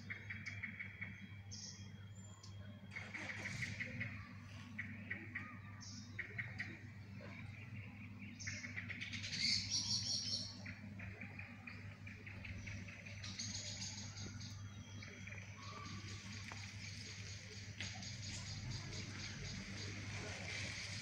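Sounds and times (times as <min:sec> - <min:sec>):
low steady hum: 0:00.0 - 0:21.0
small birds chirping: 0:00.0 - 0:21.0.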